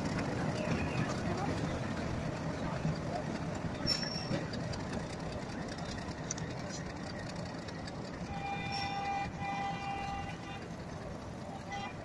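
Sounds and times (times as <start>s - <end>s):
train rumbling over tracks: 0.0s - 12.0s
train horn blasts: 8.2s - 10.7s, 11.4s - 12.0s.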